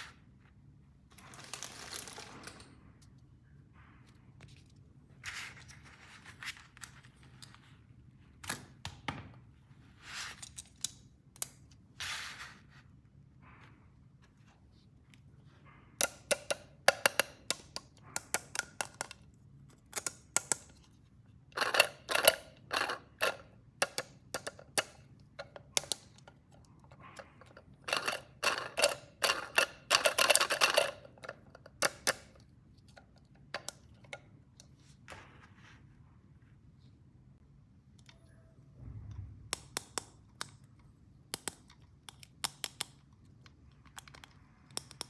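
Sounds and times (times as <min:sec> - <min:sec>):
plastic toy pieces clicking: 0:16.0 - 0:19.2, 0:21.6 - 0:26.3, 0:27.8 - 0:32.4.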